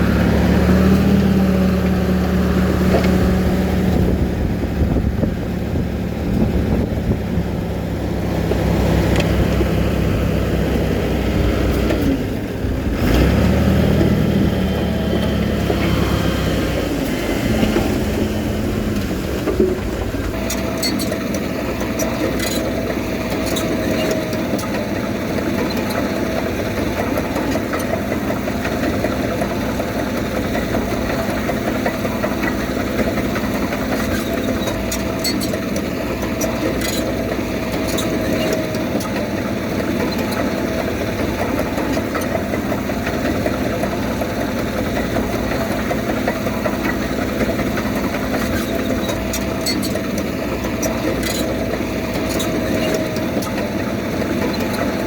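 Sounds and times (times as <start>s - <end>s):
heavy machinery diesel engine: 0.0s - 55.0s
steady whine: 14.2s - 23.4s.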